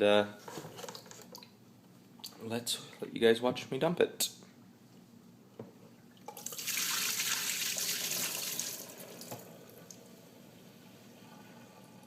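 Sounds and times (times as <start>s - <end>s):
water pouring into sink: 6.3s - 10.0s.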